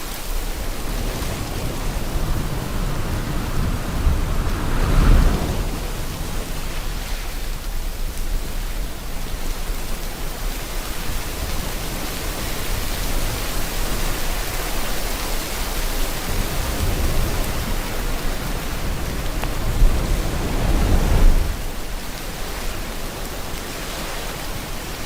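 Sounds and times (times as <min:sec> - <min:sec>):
ocean surf: 0:00.0 - 0:25.0
steady rain: 0:00.0 - 0:25.0
low rumble: 0:00.9 - 0:06.6.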